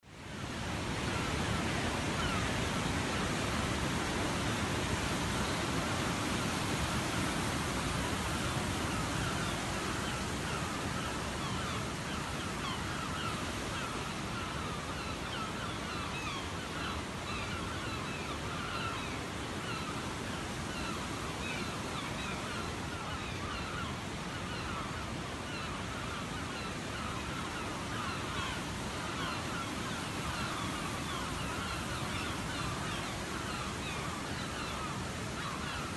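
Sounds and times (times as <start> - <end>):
waterfall roar: 0.3 - 16.4.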